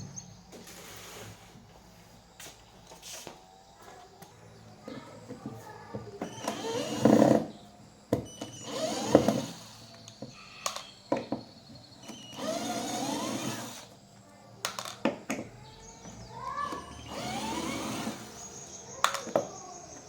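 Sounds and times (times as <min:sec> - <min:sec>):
small electric motor spinning up: 0:06.3 - 0:07.6, 0:08.2 - 0:10.2, 0:12.0 - 0:13.9, 0:17.0 - 0:18.6.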